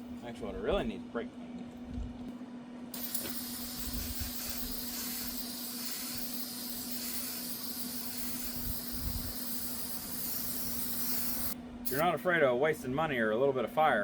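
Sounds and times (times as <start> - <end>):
aerosol can spraying hiss: 3.0 - 12.1.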